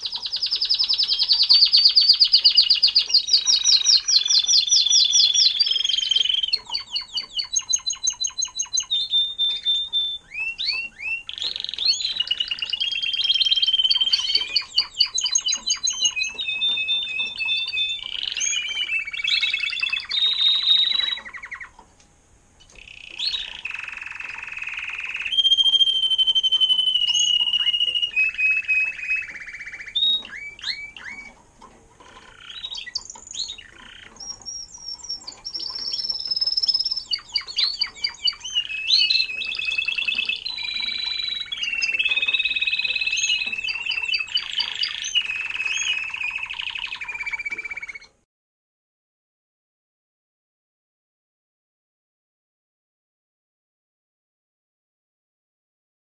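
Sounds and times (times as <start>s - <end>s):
songbird singing: 0.0s - 22.0s, 22.6s - 48.3s.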